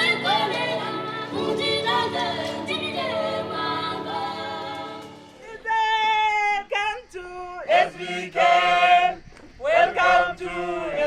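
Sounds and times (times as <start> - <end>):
choir singing a cappella: 0.0 - 5.5, 7.7 - 11.0.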